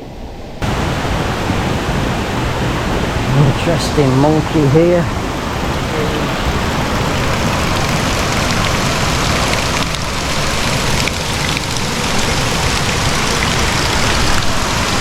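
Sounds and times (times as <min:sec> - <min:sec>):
waterfall rushing: 0:00.6 - 0:15.0.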